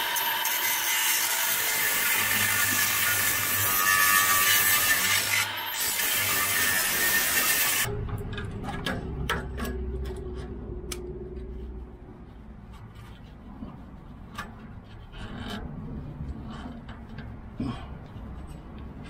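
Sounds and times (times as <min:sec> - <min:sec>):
power saw cutting metal pipe: 0:00.0 - 0:08.0.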